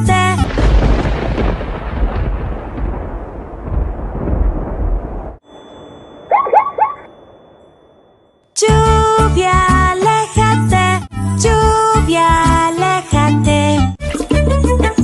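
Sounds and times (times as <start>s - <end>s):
thunder rumble: 0.4s - 5.4s.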